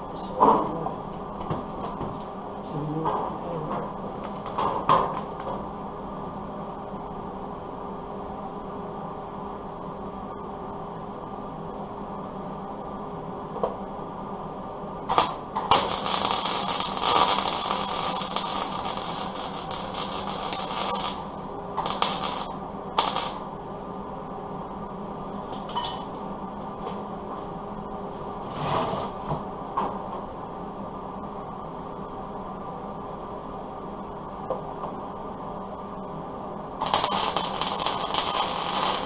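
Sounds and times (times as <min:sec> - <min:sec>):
steady background hum: 0:00.0 - 0:39.0
welder crackling: 0:15.0 - 0:23.5, 0:36.8 - 0:39.0.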